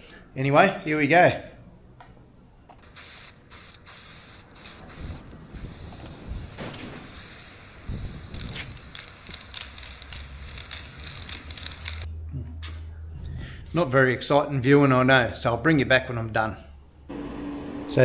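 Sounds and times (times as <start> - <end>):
spray paint hissing from aerosol can: 3.0 - 12.1.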